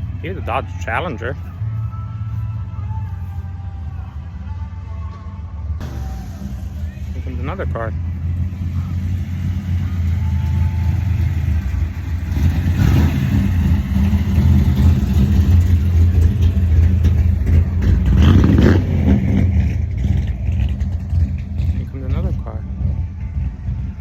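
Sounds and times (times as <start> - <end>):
car engine passing slowly: 0.0 - 24.0.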